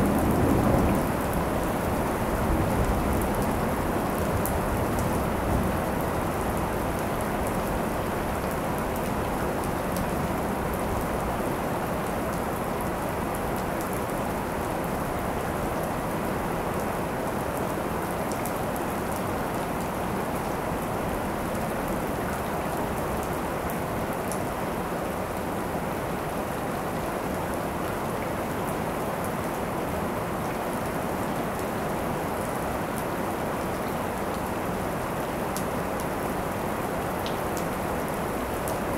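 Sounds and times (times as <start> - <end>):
heavy rain pattering: 0.0 - 38.9
rain drop ticks: 37.2 - 37.7.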